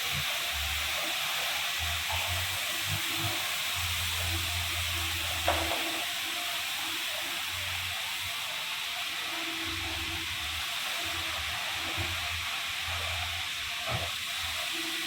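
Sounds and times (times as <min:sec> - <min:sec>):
high-pressure water jets hissing: 0:00.0 - 0:15.0.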